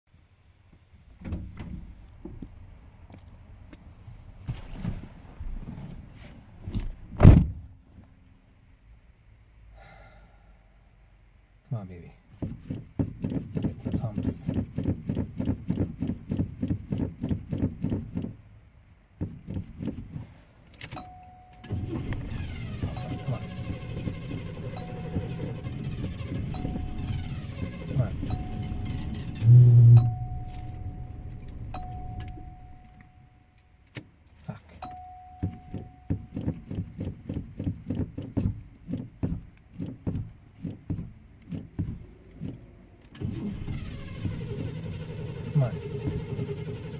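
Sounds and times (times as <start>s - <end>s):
car engine cranking: 12.3s - 18.5s, 19.2s - 46.9s.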